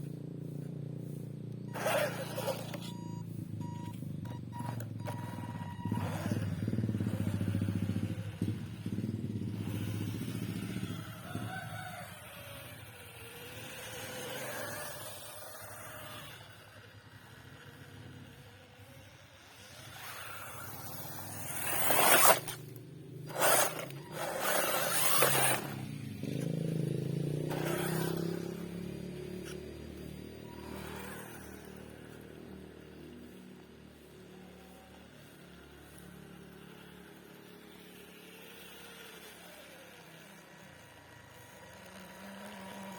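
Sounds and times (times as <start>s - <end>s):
rc car motor: 0.6s - 42.9s.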